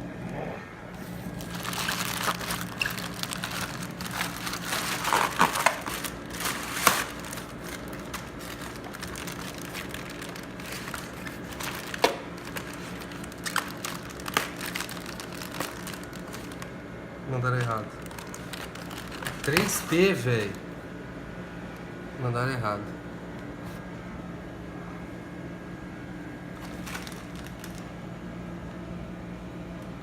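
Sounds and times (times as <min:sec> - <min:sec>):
packaging crinkling and rustling: 0:01.0 - 0:16.7, 0:17.5 - 0:20.6, 0:26.6 - 0:27.9.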